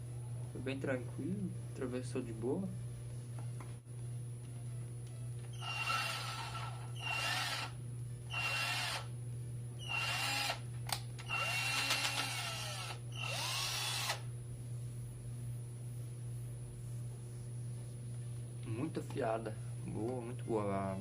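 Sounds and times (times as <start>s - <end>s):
drill motor whining: 5.5s - 9.1s, 9.8s - 10.6s, 11.2s - 14.2s.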